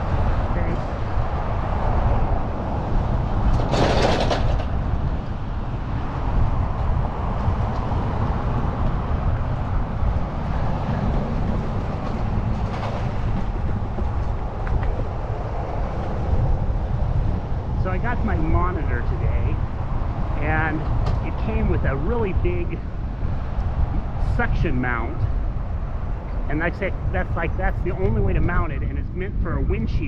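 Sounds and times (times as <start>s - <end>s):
wind noise on microphone: 0.0s - 30.0s.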